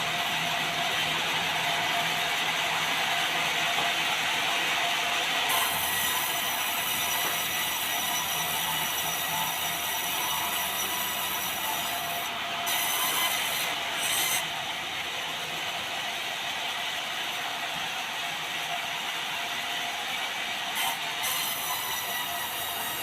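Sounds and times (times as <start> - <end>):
saw blade cutting timber: 5.5 - 14.5, 20.7 - 23.0.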